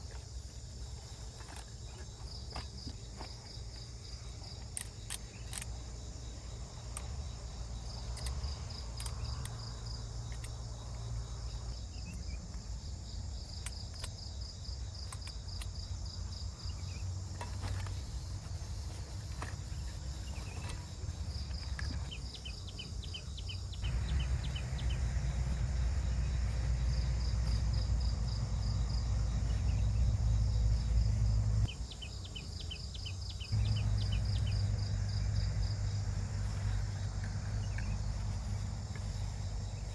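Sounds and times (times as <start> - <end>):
insects chirping: 0.0 - 39.9
steady low rumble: 23.0 - 32.0, 33.4 - 39.9.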